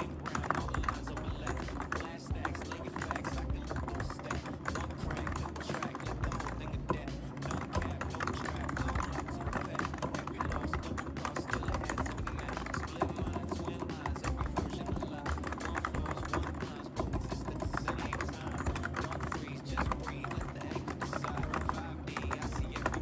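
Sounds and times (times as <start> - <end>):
background music: 0.0 - 23.0
fast typing on a keyboard: 0.0 - 23.0.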